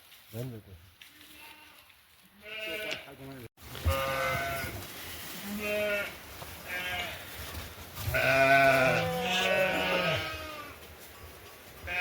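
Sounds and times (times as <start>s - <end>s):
goats or sheep bleating: 1.1s - 3.2s, 3.8s - 7.4s, 8.0s - 10.8s.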